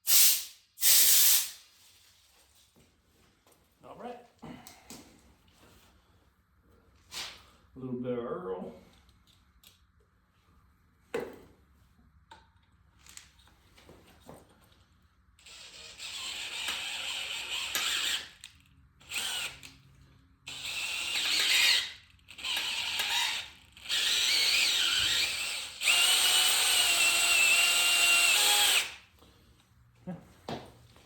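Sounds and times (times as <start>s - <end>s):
power drill whining: 15.4s - 19.8s, 20.5s - 29.1s.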